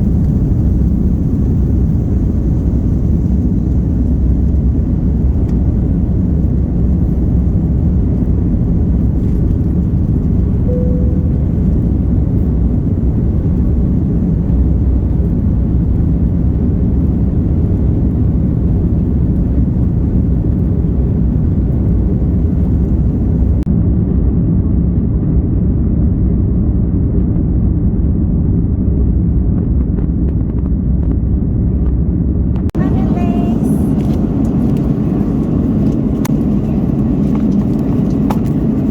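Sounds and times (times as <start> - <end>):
airliner cabin engine drone: 0.0 - 38.9
faint tone: 10.6 - 13.1.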